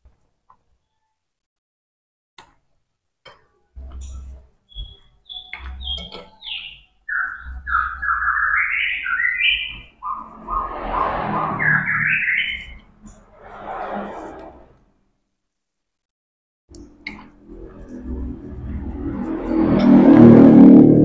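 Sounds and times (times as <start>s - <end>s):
bird chirping and singing: 4.7s - 12.9s.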